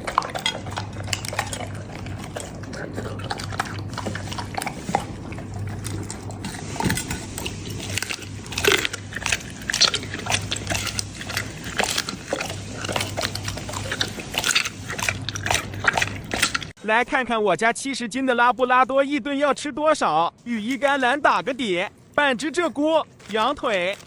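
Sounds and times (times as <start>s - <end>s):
dog chewing food: 0.0s - 16.8s, 20.6s - 24.0s.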